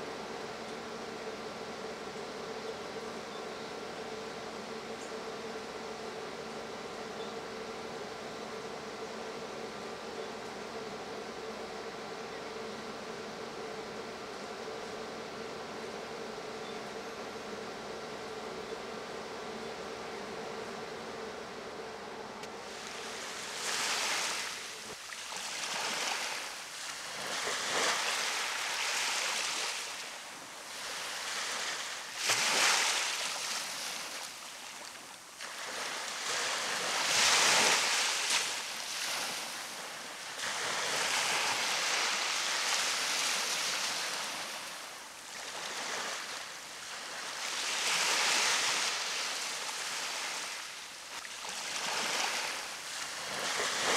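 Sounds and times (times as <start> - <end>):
steady hum: 0.0 - 53.9
ocean waves breaking on beach: 22.6 - 53.9.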